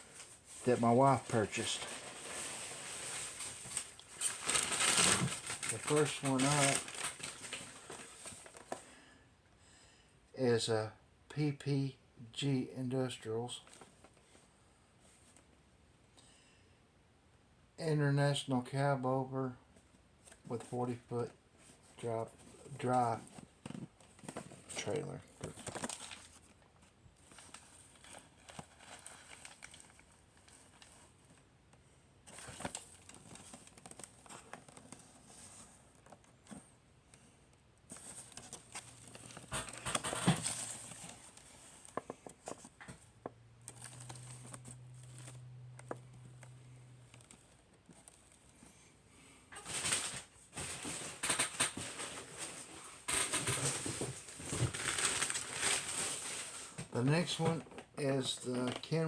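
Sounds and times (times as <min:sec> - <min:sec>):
packaging crinkling and rustling: 0:00.0 - 0:08.8, 0:21.6 - 0:31.5, 0:32.2 - 0:36.7, 0:37.9 - 0:48.8, 0:49.5 - 0:59.0.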